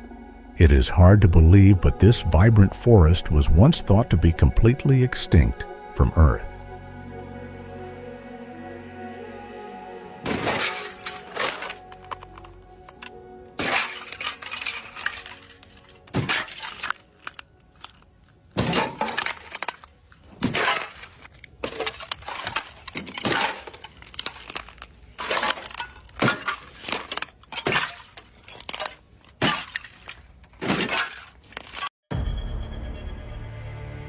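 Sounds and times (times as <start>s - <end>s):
sharp cracking impacts: 10.2s - 31.9s.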